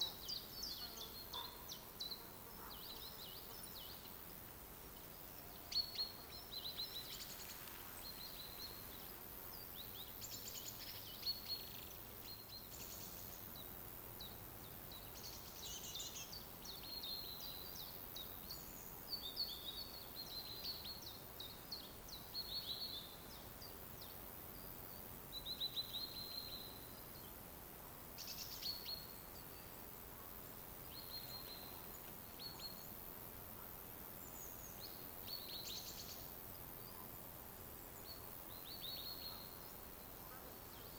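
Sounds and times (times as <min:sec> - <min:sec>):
songbirds chirping and singing: 0:00.0 - 0:04.1
faint background hiss: 0:00.0 - 0:40.9.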